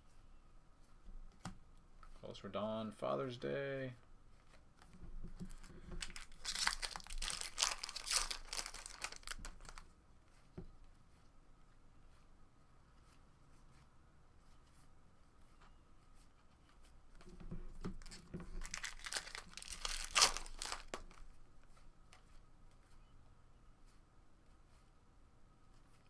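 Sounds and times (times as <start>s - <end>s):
wrapper tearing and crinkling: 5.5s - 9.8s, 18.0s - 21.2s.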